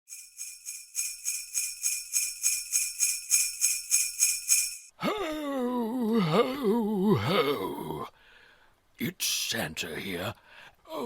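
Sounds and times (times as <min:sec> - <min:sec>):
jingle bells shaking: 0:00.1 - 0:04.9
deep voice speaking: 0:09.0 - 0:10.4.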